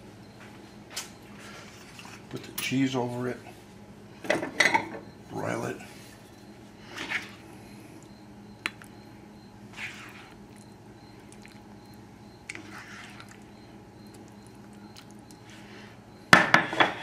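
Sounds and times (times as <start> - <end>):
low steady hum: 0.0 - 17.0
spoon scraping skillet: 9.7 - 10.4, 12.5 - 13.4.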